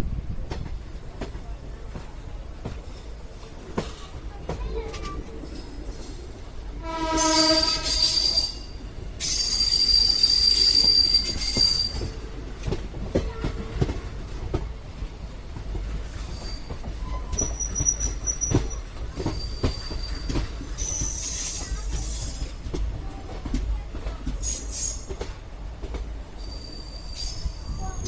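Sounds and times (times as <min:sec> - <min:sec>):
train rumbling on track: 0:00.0 - 0:28.0
wheels squealing on rails: 0:05.0 - 0:12.8, 0:16.0 - 0:23.4, 0:24.4 - 0:25.4, 0:26.3 - 0:28.0
train horn: 0:06.8 - 0:08.5.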